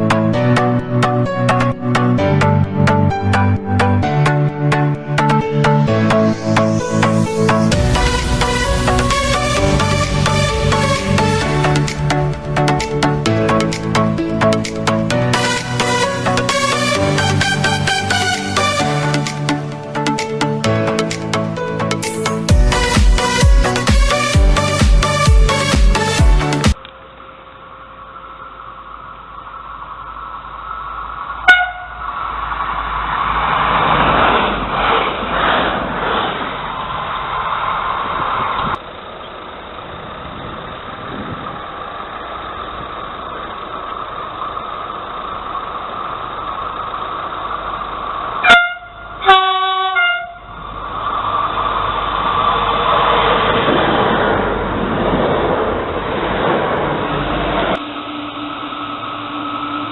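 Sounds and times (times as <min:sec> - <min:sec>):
train wheels rumbling on rail: 0:07.2 - 0:26.7
train horn blast: 0:31.4 - 0:32.1, 0:48.4 - 0:50.6.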